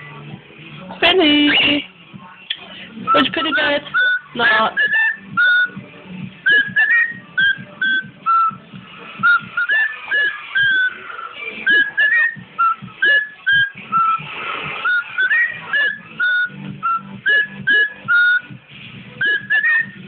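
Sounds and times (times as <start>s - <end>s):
cockatiel whistling short notes: 3.1s - 5.8s, 6.5s - 8.6s, 9.2s - 14.2s, 14.8s - 18.4s, 19.2s - 20.0s.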